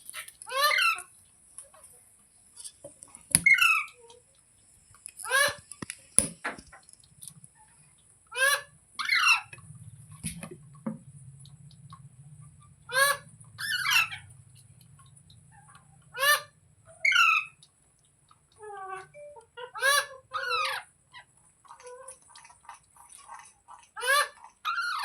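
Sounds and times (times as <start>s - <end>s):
parrot harsh calls: 5.2s - 5.6s, 8.3s - 9.5s, 12.9s - 14.3s, 16.1s - 17.6s, 18.9s - 20.9s.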